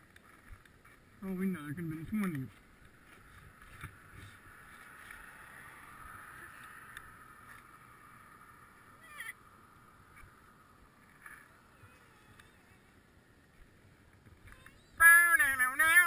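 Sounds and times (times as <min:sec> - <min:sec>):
faint clicks: 0:06.5 - 0:07.7, 0:12.2 - 0:12.7.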